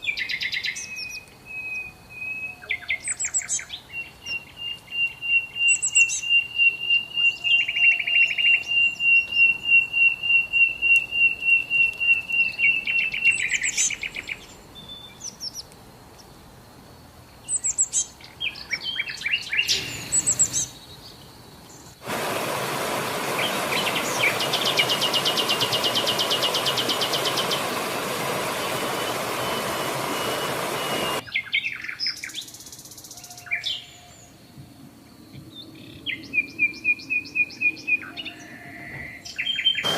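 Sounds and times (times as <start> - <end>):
songbirds trilling and chirping: 0.0 - 22.0, 23.2 - 39.9
steady rushing noise: 22.0 - 31.2.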